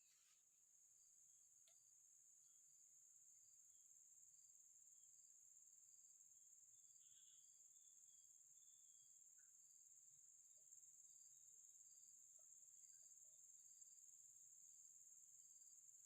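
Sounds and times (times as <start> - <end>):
crickets chirring: 4.2 - 16.0.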